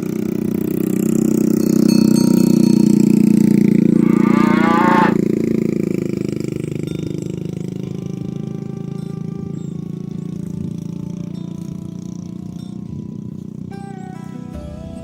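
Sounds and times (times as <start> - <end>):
ox lowing: 3.8 - 5.3
steady low hum: 3.8 - 5.3.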